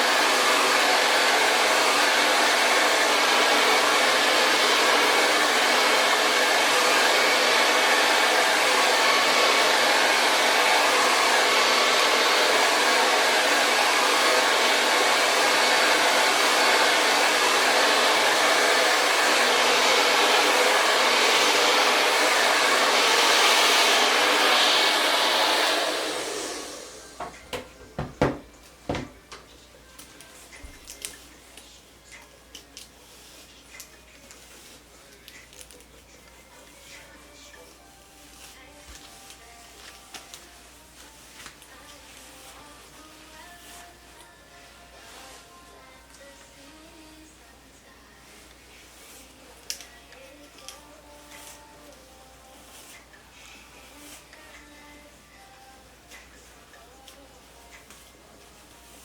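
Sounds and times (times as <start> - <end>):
hair dryer blowing: 0.0 - 29.4.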